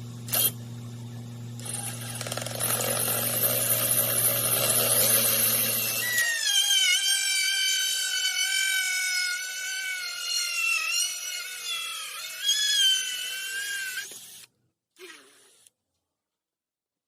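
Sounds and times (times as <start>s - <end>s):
drill hole saw cutting wood: 0.3s - 0.6s, 1.6s - 14.5s.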